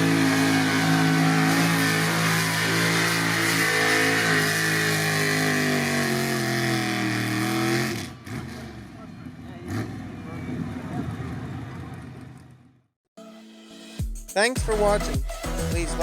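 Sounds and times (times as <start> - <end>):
truck engine revving hard: 0.0 - 11.5.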